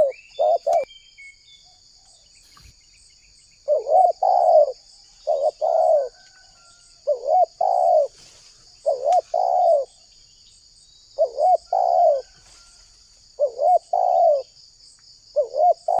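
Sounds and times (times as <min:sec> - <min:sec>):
dove cooing: 0:00.0 - 0:00.9, 0:03.6 - 0:08.2, 0:08.8 - 0:10.0, 0:11.2 - 0:12.4, 0:13.4 - 0:14.5, 0:15.4 - 0:16.0.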